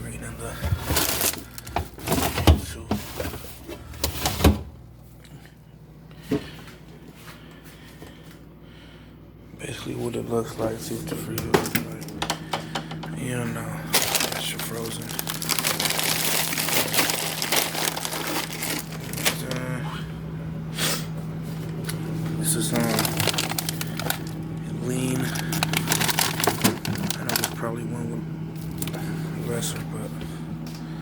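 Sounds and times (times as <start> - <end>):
plastic food packages crinkling: 0.6 - 4.3, 11.6 - 19.7, 21.6 - 27.8, 28.6 - 29.1.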